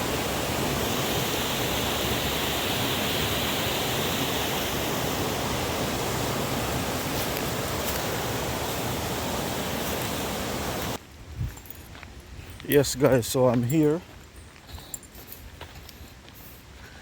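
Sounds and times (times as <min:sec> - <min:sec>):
river water over cascade: 0:00.0 - 0:11.0.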